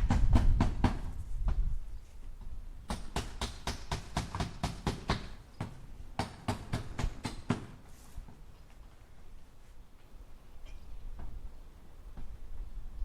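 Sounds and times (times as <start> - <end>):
hammer striking nails into wood: 2.9 - 7.8.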